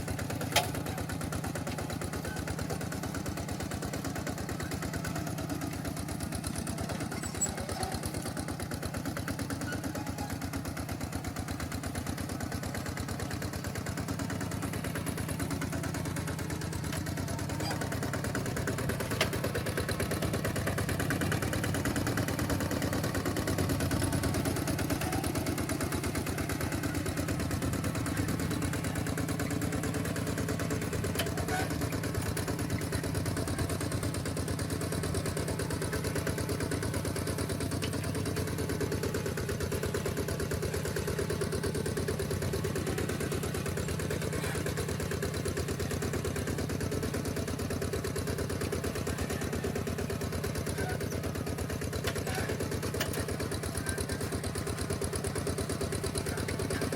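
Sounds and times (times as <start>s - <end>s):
walking tractor engine chugging: 0.0s - 56.9s.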